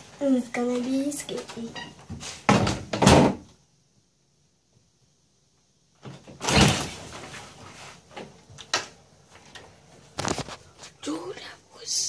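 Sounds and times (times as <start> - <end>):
door shutting with a thud: 2.1 - 3.5.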